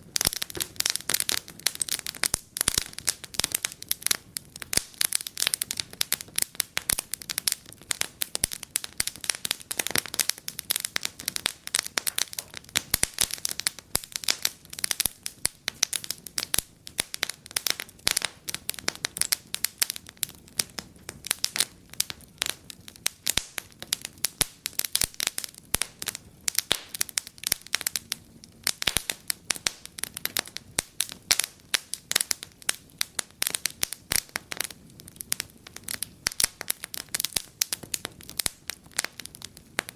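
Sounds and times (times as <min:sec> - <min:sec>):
faint low hiss: 0:00.0 - 0:39.9
wood fire crackling and popping: 0:00.0 - 0:39.9.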